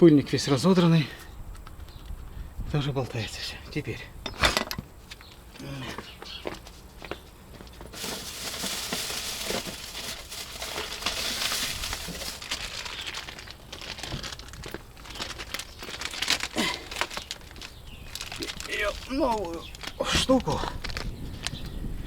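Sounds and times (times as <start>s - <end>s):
packaging crinkling: 7.9s - 21.1s.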